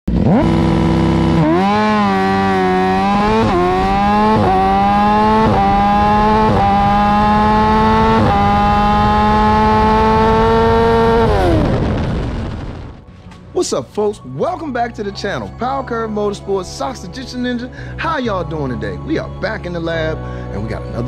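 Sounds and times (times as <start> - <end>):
motorcycle engine accelerating: 0.0 - 13.1.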